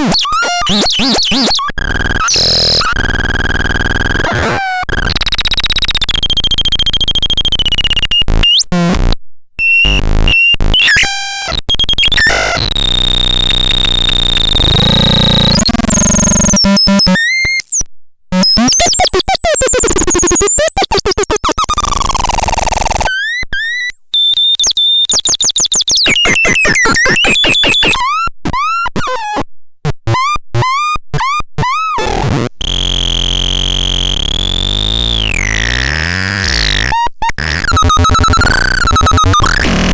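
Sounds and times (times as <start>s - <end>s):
synthesizer bird-like chirps: 25.1s - 28.0s.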